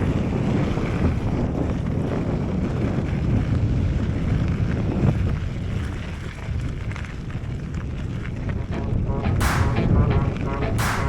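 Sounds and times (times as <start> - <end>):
bike rattling over gravel: 0.0 - 8.6
wind buffeting microphone: 0.0 - 9.1.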